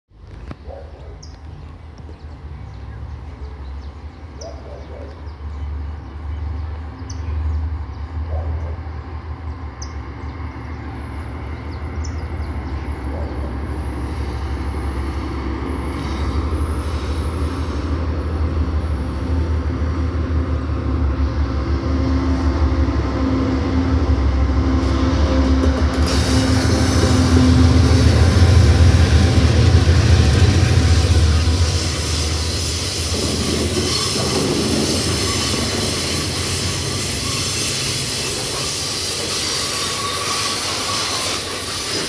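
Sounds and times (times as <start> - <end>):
locomotive engine rumble: 5.3 - 41.7
high hiss: 13.6 - 19.8, 25.9 - 42.0.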